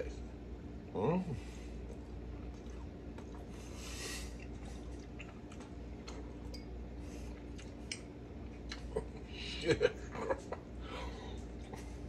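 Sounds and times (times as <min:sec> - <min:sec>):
man chewing: 0:01.7 - 0:09.4, 0:10.0 - 0:12.0.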